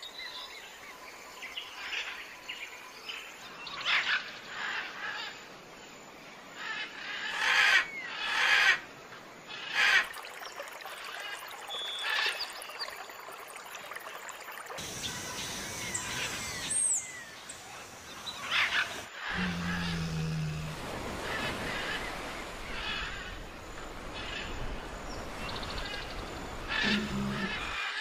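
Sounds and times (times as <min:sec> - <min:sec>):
harsh bird calls: 0:25.2 - 0:28.0.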